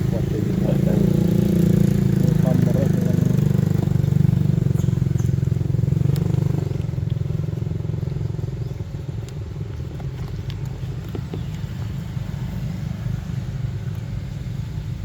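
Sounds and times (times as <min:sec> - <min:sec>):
small engine pulsing: 0:00.0 - 0:14.2.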